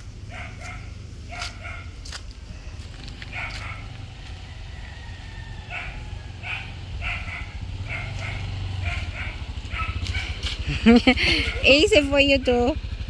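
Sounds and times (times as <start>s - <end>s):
dog barking: 0.3s - 2.0s, 3.2s - 10.6s.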